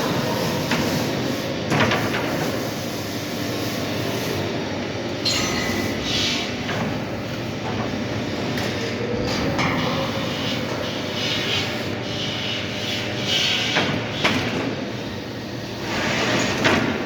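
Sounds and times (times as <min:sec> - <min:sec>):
steady rumbling fabrication noise: 0:03.2 - 0:13.2.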